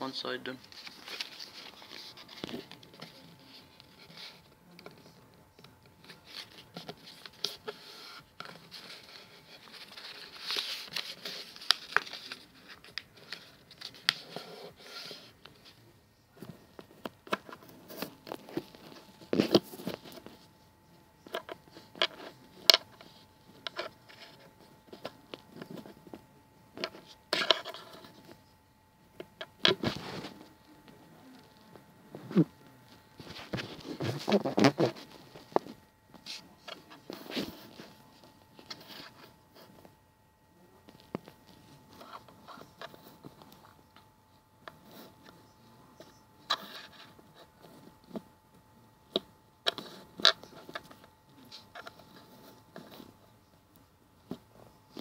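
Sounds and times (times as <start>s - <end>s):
paper rustling and crinkling: 0.5s - 20.6s, 29.2s - 40.0s
paper fold taps and scrapes: 0.6s - 15.6s.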